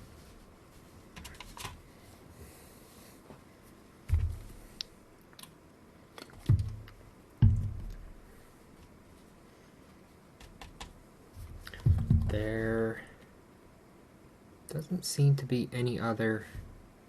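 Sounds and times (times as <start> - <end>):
dull knocks on work surface: 4.1 - 4.5, 7.4 - 8.0, 11.8 - 12.5.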